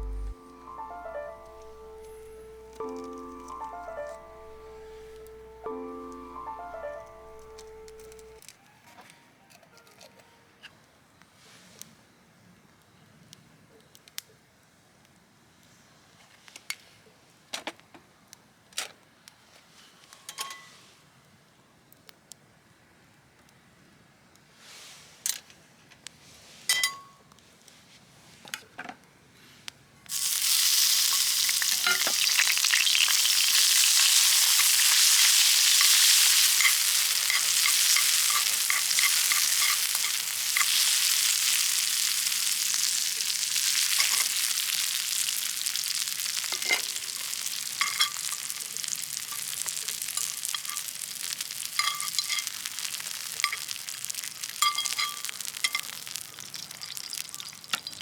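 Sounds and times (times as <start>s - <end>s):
food sizzling in a pan: 0.0s - 8.4s, 30.1s - 58.0s.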